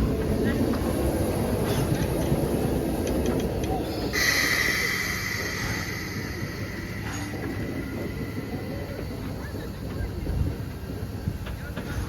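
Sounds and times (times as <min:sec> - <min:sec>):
train rumbling: 0:00.0 - 0:12.0
loud hiss with squeal: 0:03.8 - 0:09.2.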